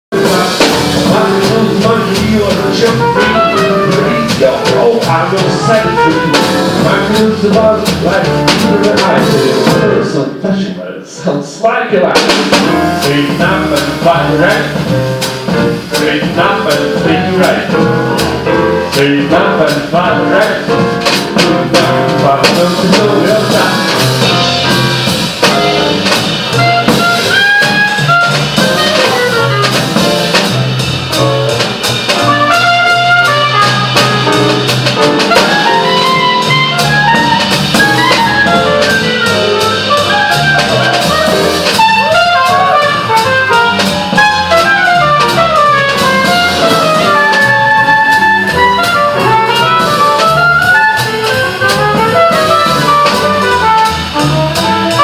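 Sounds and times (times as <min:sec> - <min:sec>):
walking bass line: 0:00.1 - 0:10.2, 0:12.1 - 0:55.0
trumpet: 0:00.1 - 0:10.4, 0:12.1 - 0:55.0
drum kit: 0:00.1 - 0:55.0
saxophone: 0:02.8 - 0:07.0, 0:25.4 - 0:31.3, 0:32.1 - 0:55.0.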